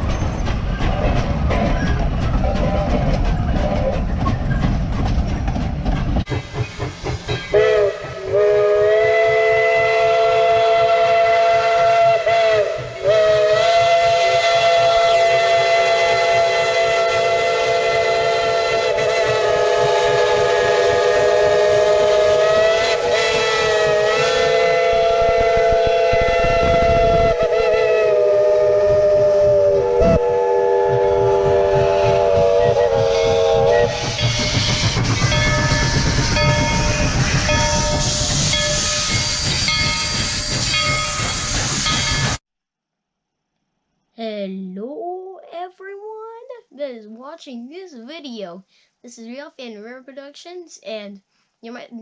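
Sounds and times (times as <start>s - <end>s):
pulsing train running noise: 0.0s - 42.4s
chime steam whistle blast: 6.7s - 42.4s.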